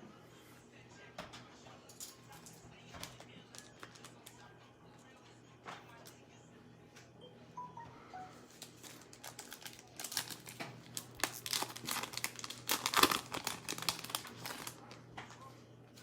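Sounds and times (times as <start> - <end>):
foil wrapper crinkling and tearing: 3.0 - 4.4, 8.6 - 15.0.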